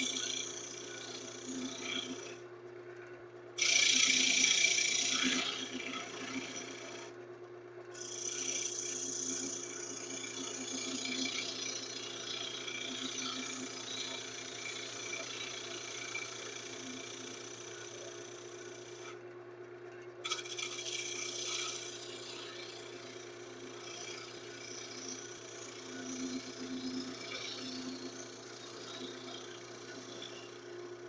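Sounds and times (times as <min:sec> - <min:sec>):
lathe motor hum: 0:00.0 - 0:02.4, 0:03.6 - 0:07.2, 0:08.0 - 0:19.2, 0:20.3 - 0:31.0.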